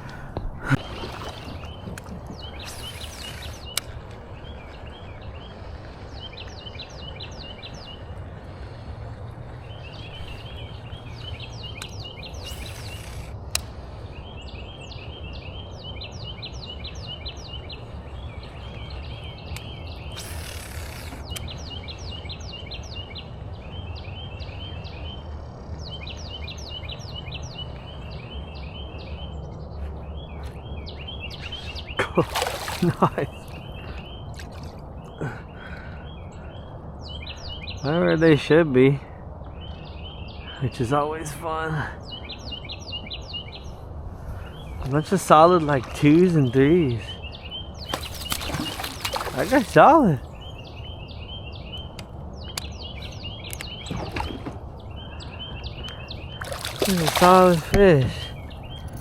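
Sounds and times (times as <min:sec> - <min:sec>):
songbird trilling: 0:01.0 - 0:05.6, 0:46.3 - 0:59.0.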